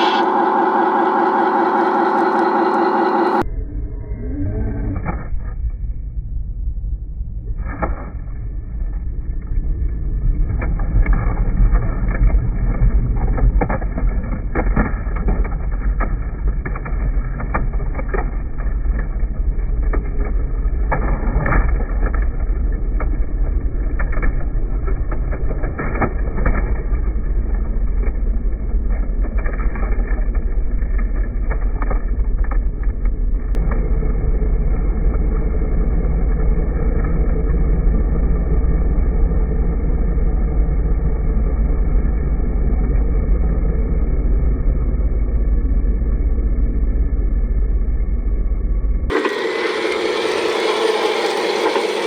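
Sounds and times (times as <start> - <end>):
toy truck drivetrain rumble: 49.1 - 52.0.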